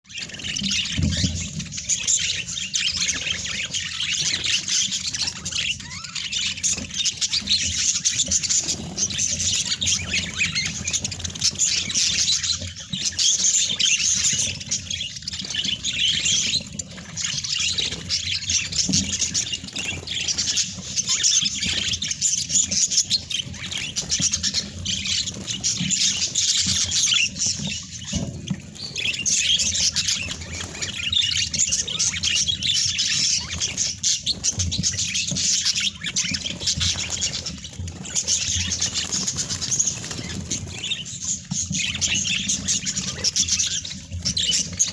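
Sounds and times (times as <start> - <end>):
budgerigars chattering: 0.1 - 44.9.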